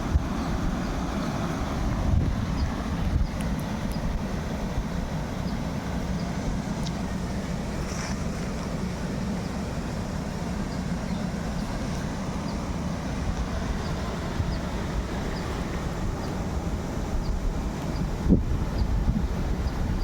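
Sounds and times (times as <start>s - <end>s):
faint light ticks: 3.3s - 4.1s, 6.8s - 7.0s.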